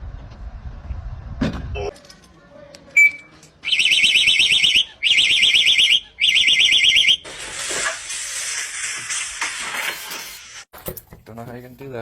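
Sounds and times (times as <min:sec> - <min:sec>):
electronic alarm warbling: 0:03.6 - 0:07.2.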